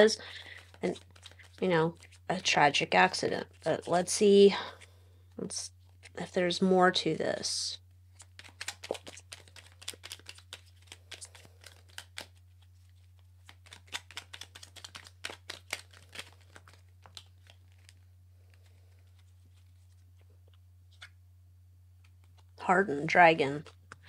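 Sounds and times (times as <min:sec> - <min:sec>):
cards being shuffled: 0:00.0 - 0:02.5, 0:05.8 - 0:06.3, 0:08.1 - 0:21.2, 0:22.0 - 0:22.6
low electrical hum: 0:00.0 - 0:24.0.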